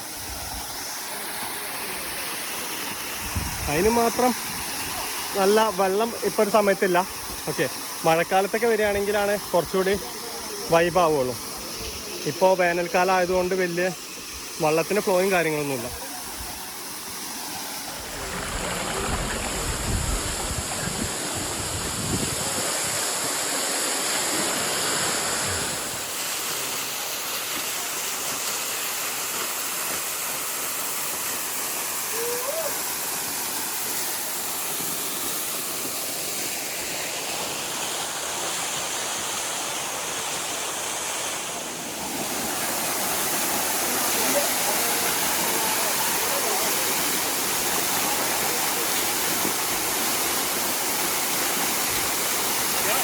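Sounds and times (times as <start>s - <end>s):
waterfall rushing and splashing: 0.0s - 53.0s
low rumble: 18.0s - 21.0s.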